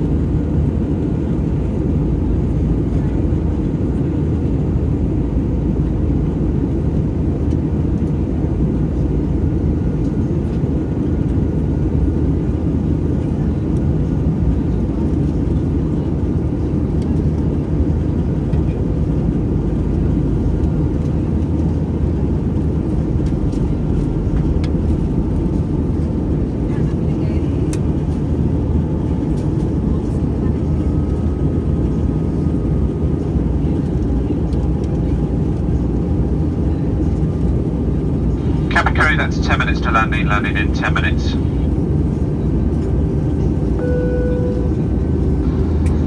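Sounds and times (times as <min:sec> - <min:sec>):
airliner cabin rumble: 0:00.1 - 0:46.0
faint steady hum: 0:38.5 - 0:41.6, 0:43.8 - 0:46.0.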